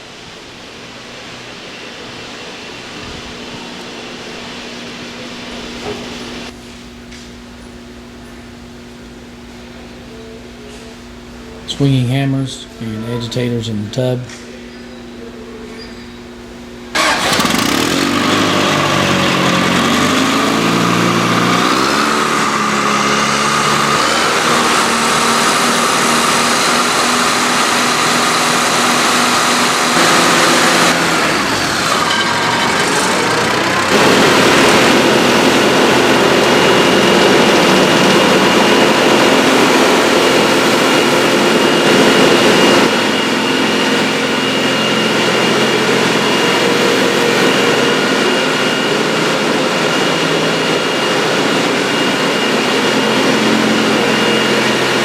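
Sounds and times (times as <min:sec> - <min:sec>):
diesel tub grinder running: 0:02.7 - 0:55.0.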